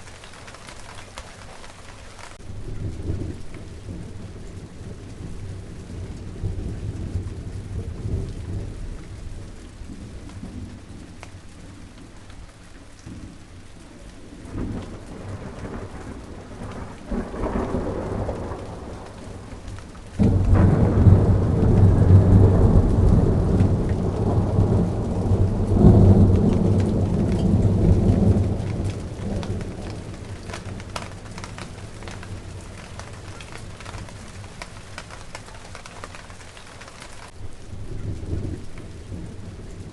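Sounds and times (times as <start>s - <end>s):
rain falling on garden: 0.0s - 39.9s
thunder rumbling: 0.0s - 39.9s.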